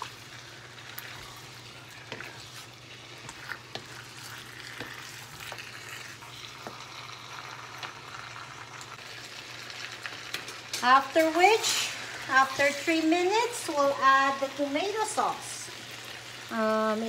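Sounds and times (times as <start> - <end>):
food sizzling in a wok: 0.0 - 17.0
wooden spatula scraping pan: 1.0 - 6.8.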